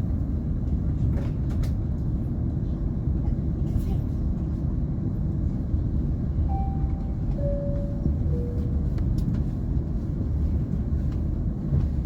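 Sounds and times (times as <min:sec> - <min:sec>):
airliner cabin rumble: 0:00.0 - 0:12.0
faint descending chime tones: 0:06.5 - 0:08.8.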